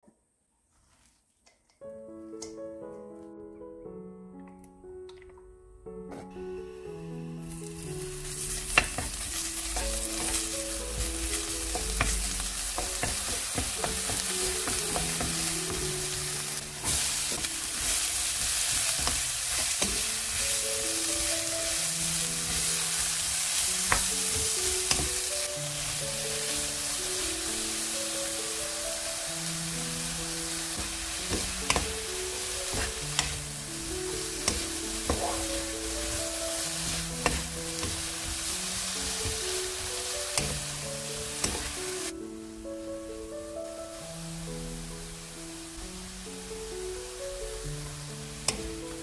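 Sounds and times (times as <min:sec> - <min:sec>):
vegetables sizzling in hot oil: 0:06.8 - 0:49.0
spatula knocking against pan: 0:11.8 - 0:15.5.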